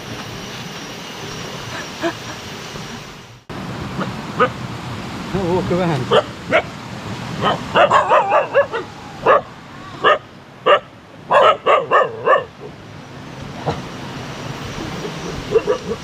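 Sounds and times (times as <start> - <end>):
dog barking: 6.1 - 6.7, 7.4 - 12.7, 15.2 - 16.0.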